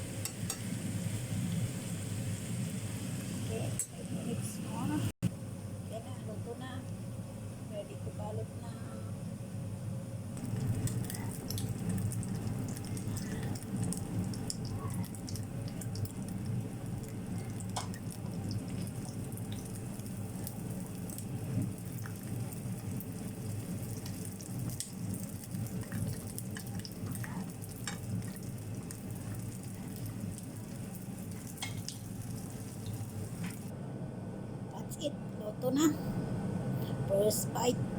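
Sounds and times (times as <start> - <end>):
food sizzling in hot oil: 0.0 - 5.0, 10.3 - 33.7
oil crackling and popping: 10.4 - 33.7.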